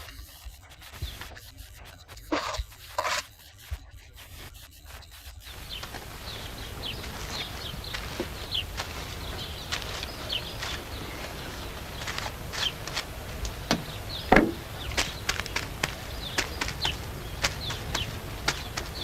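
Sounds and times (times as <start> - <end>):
small birds chirping: 0.0 - 2.7, 3.4 - 19.0
dull thump: 5.5 - 19.0
knocks and taps from hand work: 13.4 - 19.0.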